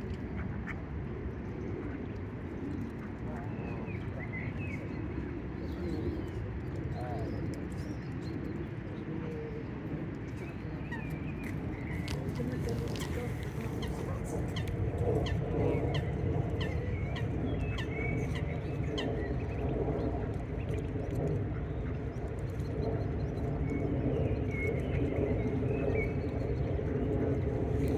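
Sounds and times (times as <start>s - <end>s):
birds chirping: 10.4s - 19.6s.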